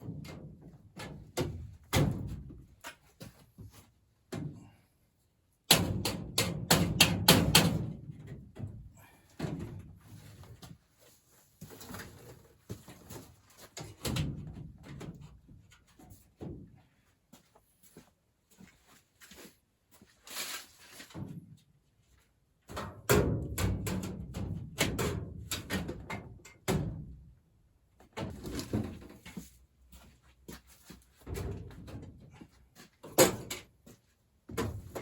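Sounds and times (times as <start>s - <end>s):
knocks and clanks on metal: 5.7s - 10.0s, 22.7s - 27.2s, 33.0s - 33.8s.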